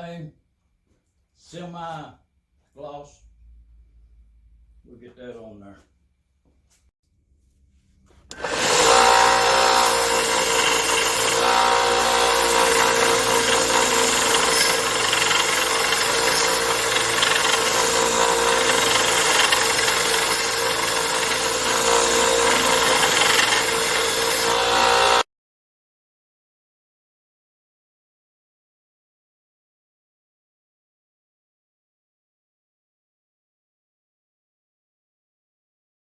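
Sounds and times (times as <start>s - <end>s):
power tool motor humming: 8.3s - 25.3s.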